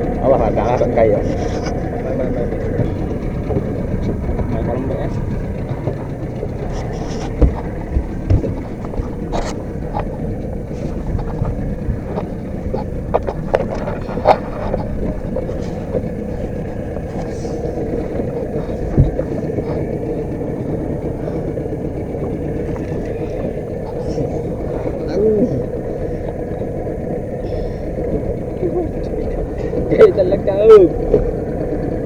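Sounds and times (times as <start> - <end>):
boat engine running: 0.0 - 32.0
rushing wind: 0.0 - 32.0
water noise: 0.0 - 32.0
sharp knocks: 6.8 - 10.2.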